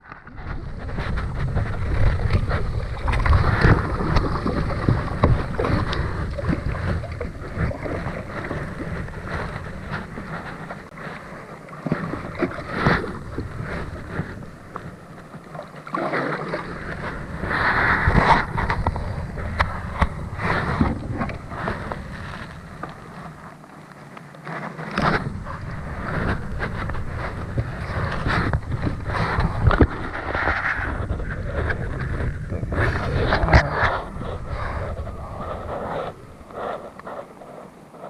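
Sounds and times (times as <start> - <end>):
wind buffeting microphone: 0.0 - 15.5, 16.3 - 23.5, 25.0 - 38.0
water splash: 0.4 - 10.6.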